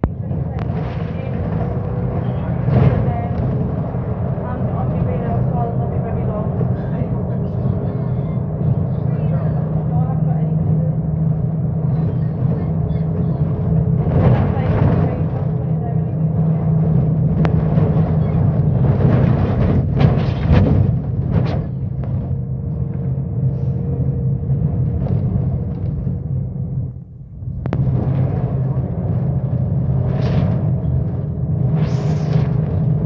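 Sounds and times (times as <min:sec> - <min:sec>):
bus engine drone: 0:00.0 - 0:33.0.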